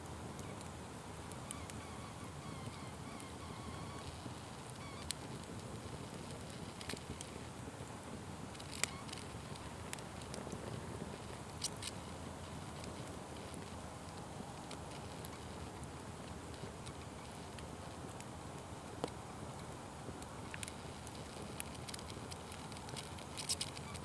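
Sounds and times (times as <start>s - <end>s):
flames roaring low: 2.5s - 23.8s
wood popping and crackling: 2.6s - 24.0s.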